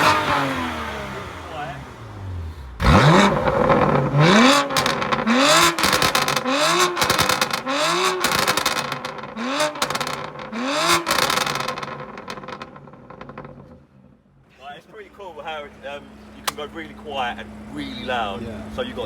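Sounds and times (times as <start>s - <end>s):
car engine revving: 0.0s - 14.0s
exhaust crackles and pops: 2.8s - 14.0s.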